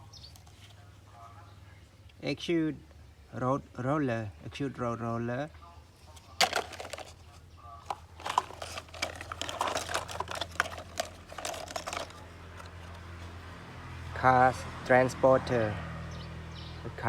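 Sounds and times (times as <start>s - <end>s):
clicks and taps of objects handled: 6.2s - 7.3s, 7.9s - 13.4s.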